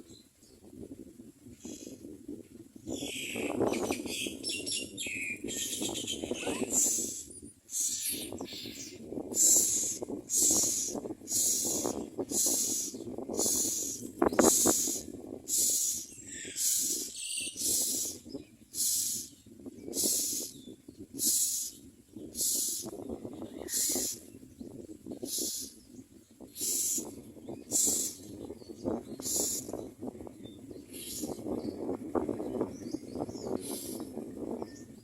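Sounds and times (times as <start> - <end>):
nestlings hissing begging calls: 5.8 - 18.2, 18.8 - 19.3, 19.9 - 20.5, 21.2 - 22.9, 23.6 - 24.2, 25.2 - 25.8, 26.6 - 28.3, 29.2 - 29.8, 31.0 - 31.4, 33.6 - 34.1.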